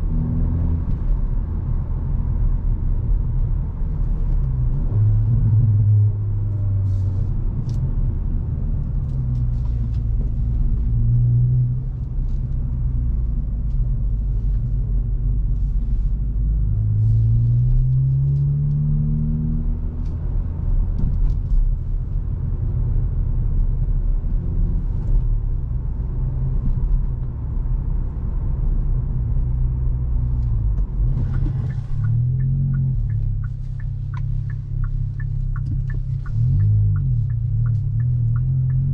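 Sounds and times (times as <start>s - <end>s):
car engine and exhaust: 0.0s - 38.9s
road noise: 0.0s - 38.9s
light ticks: 30.4s - 38.9s.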